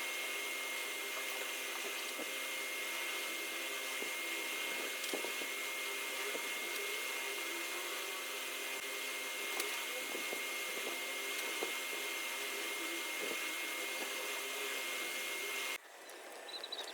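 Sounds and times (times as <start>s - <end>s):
small electric motor whining: 0.0s - 16.9s.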